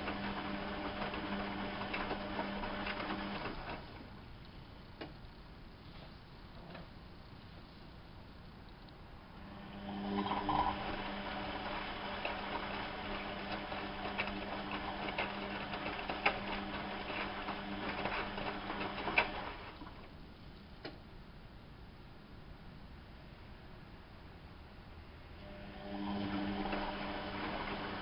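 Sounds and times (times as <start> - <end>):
washing machine motor humming: 0.0 - 4.2, 9.4 - 20.1, 25.4 - 28.0.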